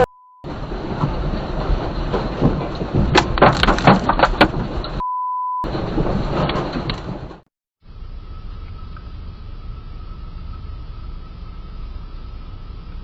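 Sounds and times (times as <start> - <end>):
censor beep tone: 0.0 - 0.5, 5.0 - 5.7
loud rumbling: 0.0 - 5.0, 5.7 - 12.9
rapid clattering knocks: 0.5 - 5.0.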